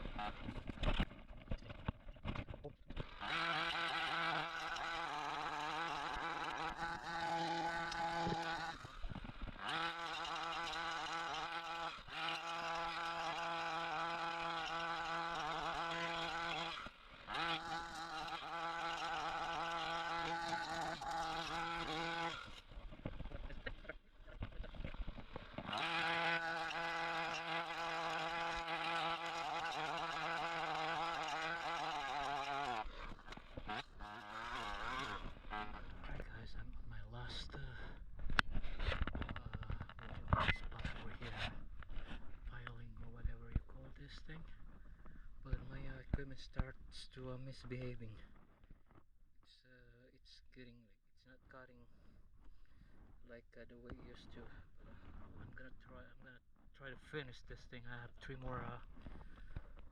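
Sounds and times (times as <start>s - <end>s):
chainsaw running at high revs: 0.0s - 1.0s, 2.4s - 36.3s.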